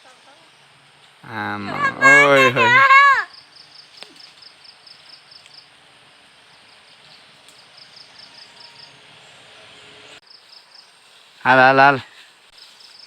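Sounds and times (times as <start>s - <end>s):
outdoor background hiss: 0.0s - 13.0s
insect chirping: 1.3s - 8.9s, 10.2s - 11.1s.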